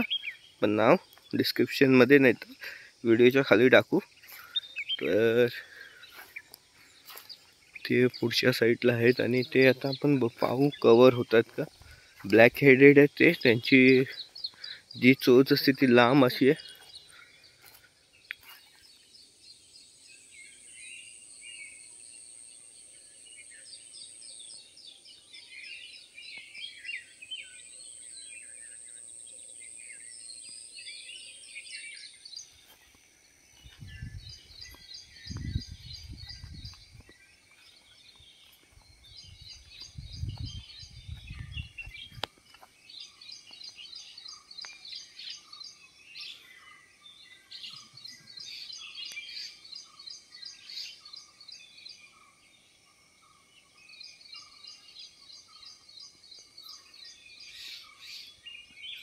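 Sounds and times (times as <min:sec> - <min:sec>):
small birds chirping: 0:00.0 - 0:59.0
low rumble on microphone: 0:33.6 - 0:37.2, 0:38.8 - 0:42.2.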